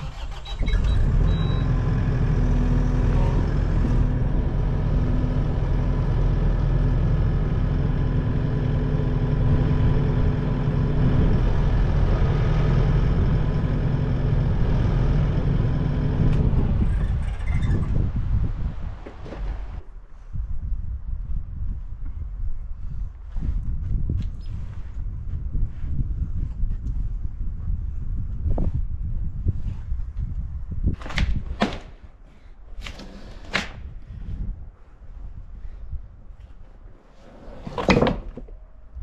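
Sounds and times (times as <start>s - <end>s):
heavy machine humming and whining: 0.6s - 18.1s.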